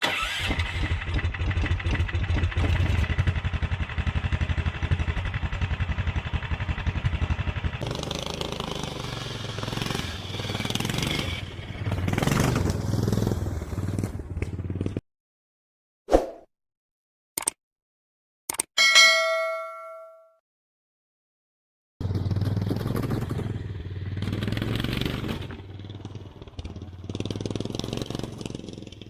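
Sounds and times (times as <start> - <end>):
go-kart engine revving: 0.0 - 15.0, 22.0 - 29.0.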